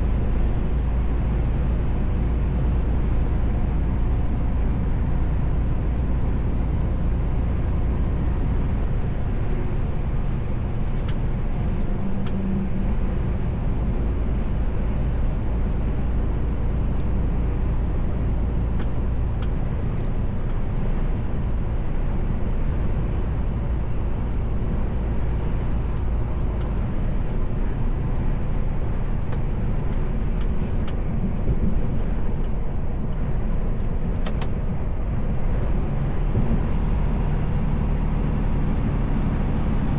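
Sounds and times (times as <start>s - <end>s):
diesel truck engine drone: 0.0s - 39.9s
tyre and road noise: 0.0s - 39.9s.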